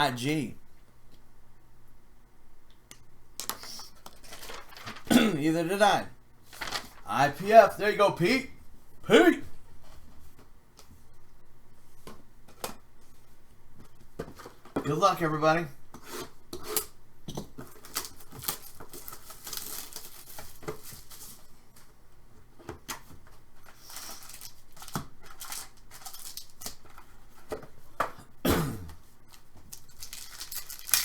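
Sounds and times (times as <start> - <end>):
wrappers rustling and crinkling: 4.1 - 5.1, 6.4 - 7.1, 17.7 - 21.9, 23.6 - 27.0, 29.3 - 31.0
packs being torn open: 23.8 - 27.0, 29.3 - 31.0.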